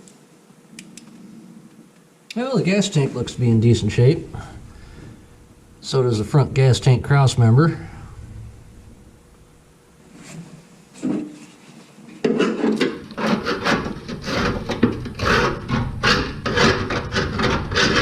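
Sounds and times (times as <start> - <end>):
scraping and rubbing strokes: 10.0 - 18.0.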